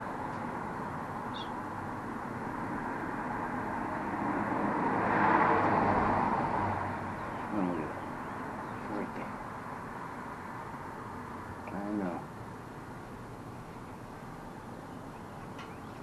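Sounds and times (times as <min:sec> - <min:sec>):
vehicle passing by: 0:00.6 - 0:12.2.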